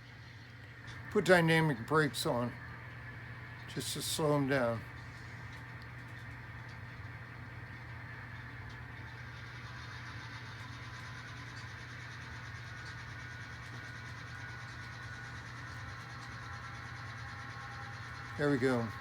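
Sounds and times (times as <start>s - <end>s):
diesel engine sound from small speaker: 0.0s - 19.0s
brake blowers running: 0.9s - 2.6s, 3.6s - 5.5s, 14.9s - 19.0s.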